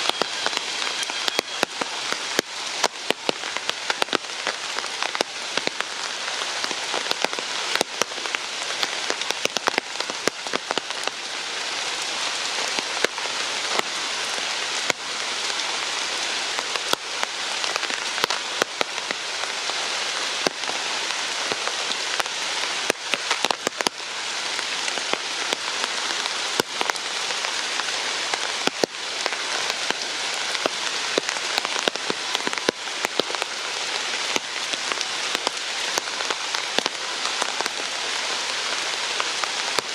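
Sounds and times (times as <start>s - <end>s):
raindrops ticking on surfaces: 0.0s - 39.9s
steady rain: 0.0s - 39.9s.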